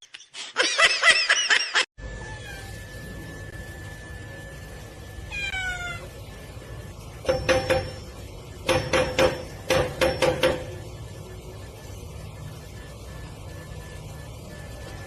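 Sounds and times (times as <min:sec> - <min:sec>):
cat meowing: 0:05.3 - 0:06.1.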